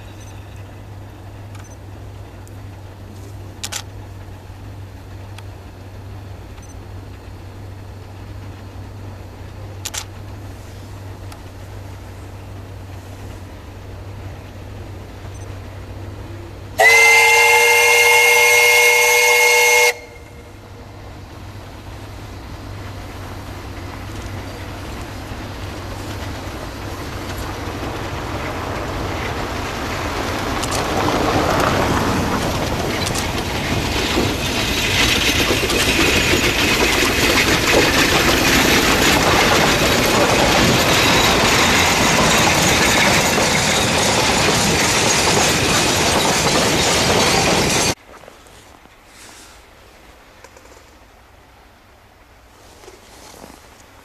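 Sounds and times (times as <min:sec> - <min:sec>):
train running noise: 0:00.0 - 0:54.0
steam whistle: 0:16.8 - 0:20.5.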